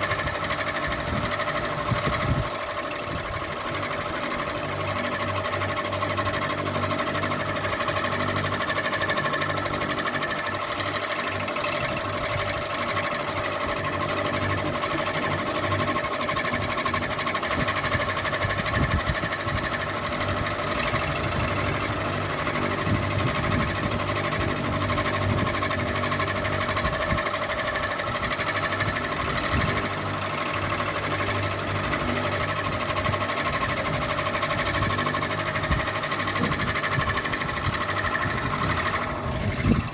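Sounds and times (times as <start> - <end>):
ceiling fan humming: 0.0 - 39.9.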